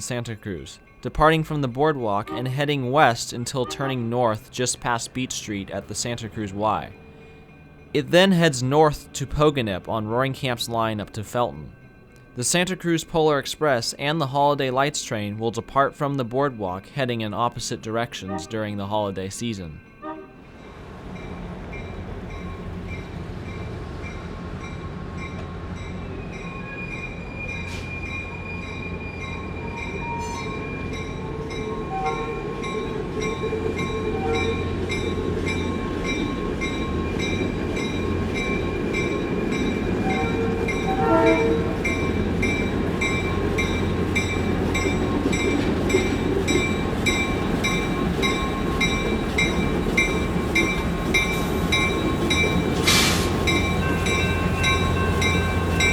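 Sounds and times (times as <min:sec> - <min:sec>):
diesel train engine rumble: 0:00.0 - 0:55.9
bell ringing: 0:26.0 - 0:55.9.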